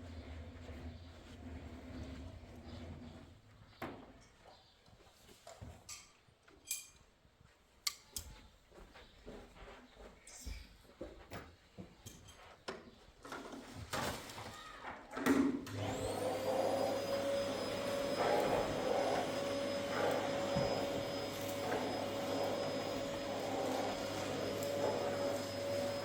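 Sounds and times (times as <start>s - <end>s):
electric motor whining and humming: 15.7s - 26.0s.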